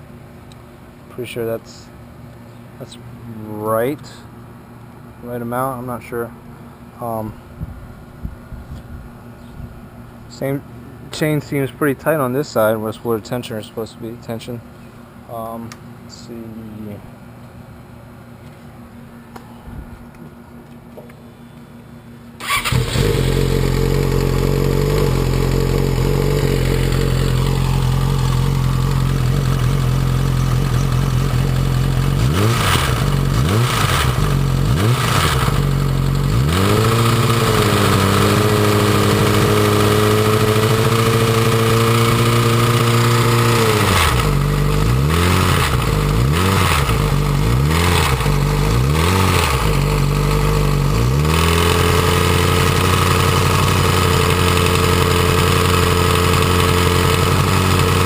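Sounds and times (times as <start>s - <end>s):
motorcycle engine idling and revving: 22.4s - 58.0s.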